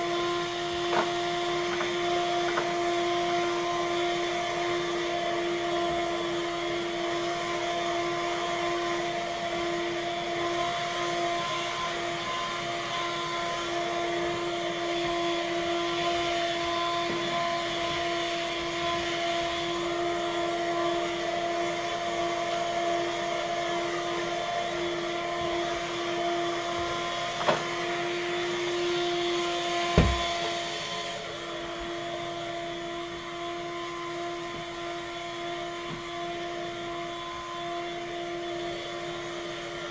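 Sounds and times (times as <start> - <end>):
vacuum cleaner running: 0.0 - 39.9
sharp knocks: 30.0 - 30.5.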